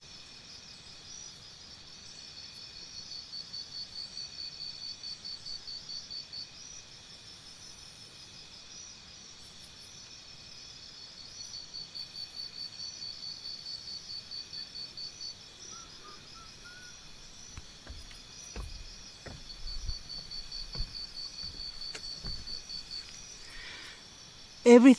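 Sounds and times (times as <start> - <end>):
insects chirping in pulsed trill: 11.3 - 24.9
faint bird chirps: 14.5 - 24.0
low thumps: 17.0 - 23.6.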